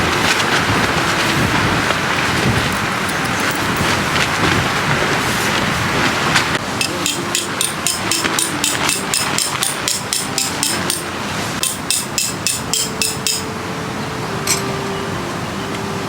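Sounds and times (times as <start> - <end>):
wind noise: 0.0 - 6.8
hammer striking metal tent pegs: 6.8 - 13.5.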